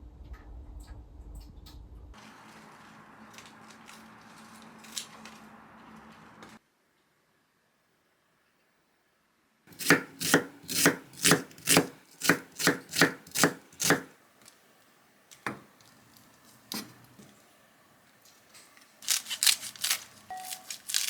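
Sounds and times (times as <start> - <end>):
knife chopping on cutting board: 9.7 - 14.1, 16.7 - 17.0.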